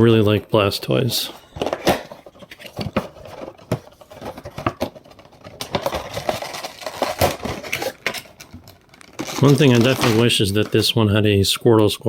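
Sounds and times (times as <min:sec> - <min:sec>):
toy packaging clicks and crinkles: 0:01.6 - 0:10.9.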